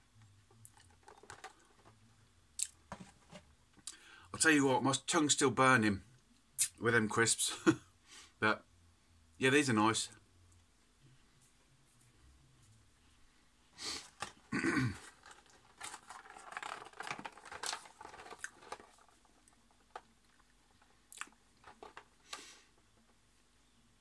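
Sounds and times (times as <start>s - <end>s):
cardboard box crackling: 14.1s - 22.3s
biscuit chewing and crunching: 15.0s - 22.2s.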